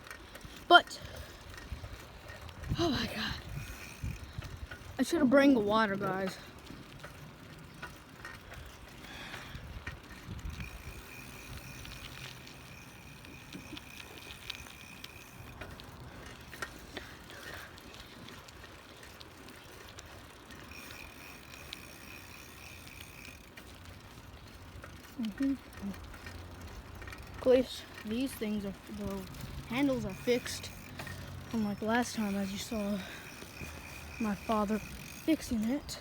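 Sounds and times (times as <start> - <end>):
bike clicks and rattles: 0.0 - 36.0
tyres rumbling on pavement: 0.9 - 36.0
wind on microphone: 9.6 - 11.1.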